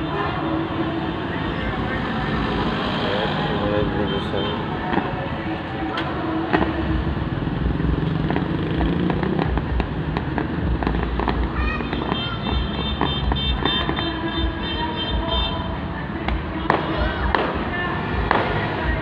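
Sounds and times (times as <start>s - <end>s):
fireworks bangs and crackles: 4.1s - 14.6s, 16.2s - 19.0s.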